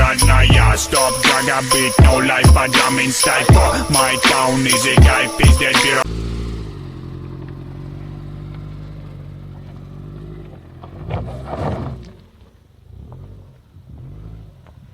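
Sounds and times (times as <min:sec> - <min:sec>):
car engine running: 0:06.0 - 0:11.5.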